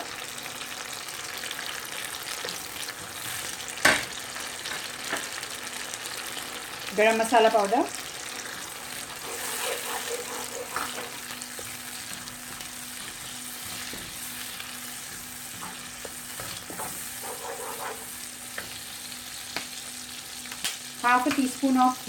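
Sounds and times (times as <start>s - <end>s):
food sizzling in hot oil: 0.0s - 22.0s
spatula scraping and tapping pan: 9.2s - 14.3s, 15.0s - 18.8s.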